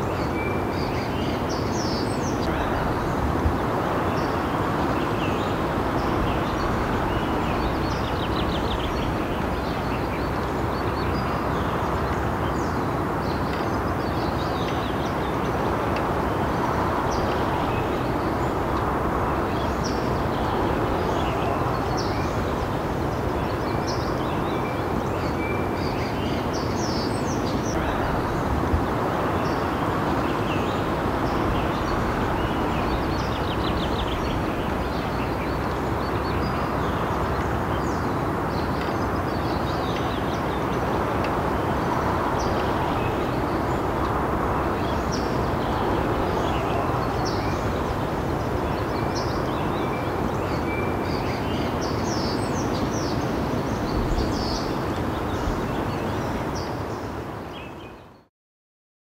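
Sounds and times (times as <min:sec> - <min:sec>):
birds chirping and trilling: 0:00.0 - 0:58.2
low background rumble: 0:02.2 - 0:14.3, 0:27.2 - 0:50.4.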